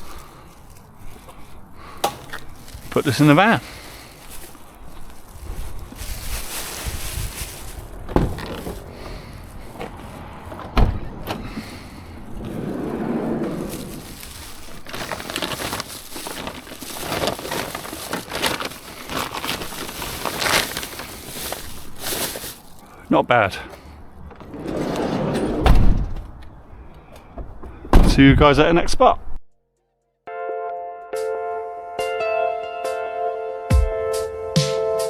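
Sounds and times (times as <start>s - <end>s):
rustling and shuffling handling: 0.0s - 25.2s
items thumping down: 1.8s - 4.6s, 5.4s - 22.8s.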